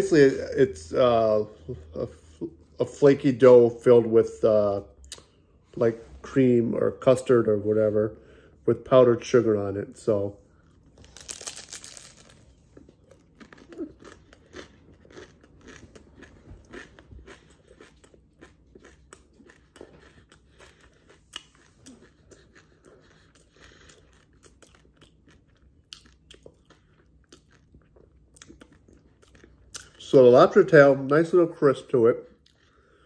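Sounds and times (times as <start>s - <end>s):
crunching pastry while chewing: 10.0s - 30.8s.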